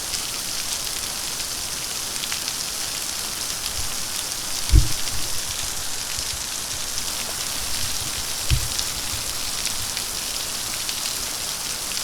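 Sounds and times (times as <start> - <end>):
water feature splashing: 0.0 - 12.0
dull low thump: 4.6 - 5.9, 7.1 - 9.4.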